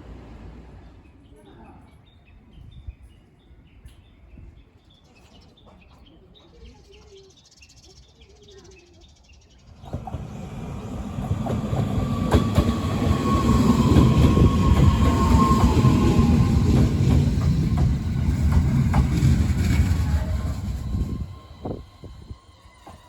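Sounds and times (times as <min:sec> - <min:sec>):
electric train rumble: 0:00.0 - 0:01.1, 0:09.7 - 0:23.0
wheels clicking over rail joints: 0:11.0 - 0:21.8.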